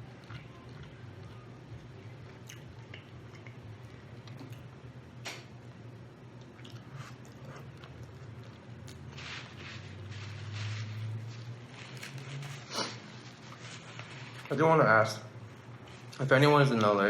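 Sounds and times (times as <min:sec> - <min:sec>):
low steady hum: 0:00.0 - 0:17.0
chewing and biting: 0:06.4 - 0:09.2.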